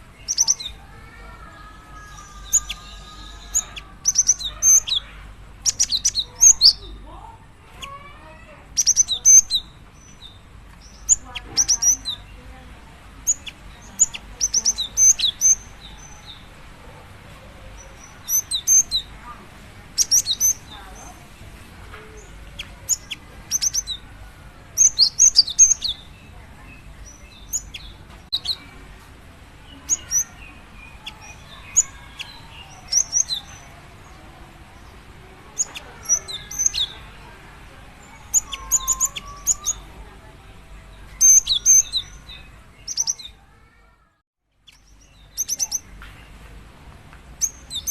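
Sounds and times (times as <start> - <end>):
bird high chirps: 0.2 - 7.0, 7.6 - 12.4, 13.2 - 16.5, 17.7 - 19.4, 20.0 - 21.2, 21.9 - 24.1, 24.8 - 28.8, 29.6 - 34.2, 34.8 - 37.3, 38.0 - 40.0, 41.0 - 43.5, 44.6 - 46.1, 47.4 - 47.9.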